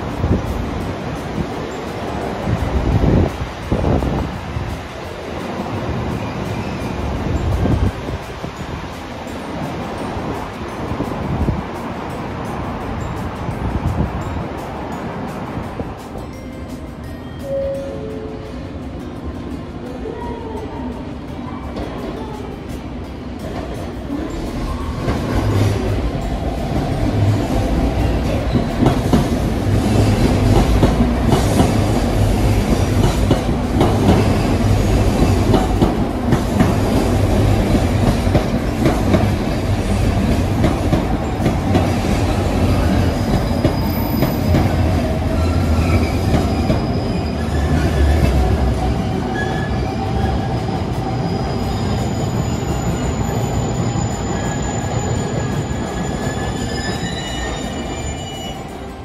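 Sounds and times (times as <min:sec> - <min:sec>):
train wheel and rail rumble: 0:00.0 - 0:59.0
high wheel squeals: 0:41.2 - 0:59.0.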